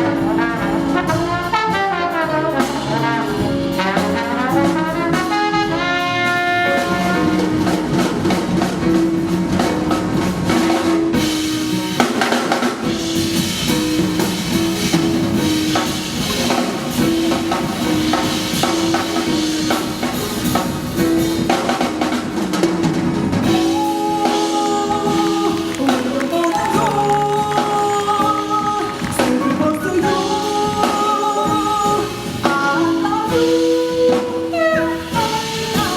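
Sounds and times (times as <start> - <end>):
drum kit: 0.0 - 35.9
horn chords: 0.0 - 35.9
live jazz band playing: 0.0 - 35.9.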